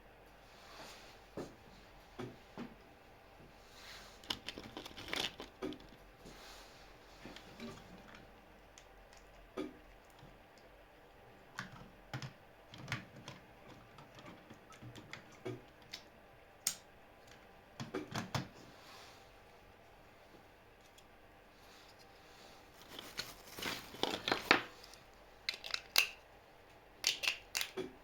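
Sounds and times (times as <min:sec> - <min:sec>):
clicks of small parts handled: 0:22.8 - 0:26.2, 0:27.0 - 0:27.9.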